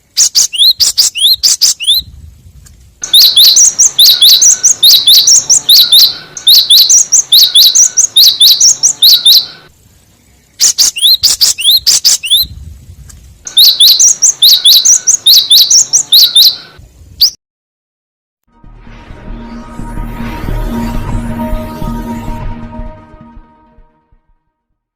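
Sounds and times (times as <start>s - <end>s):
bird calls with sharp high chips: 0.0s - 2.0s, 3.0s - 9.7s, 10.4s - 12.5s, 13.5s - 17.4s.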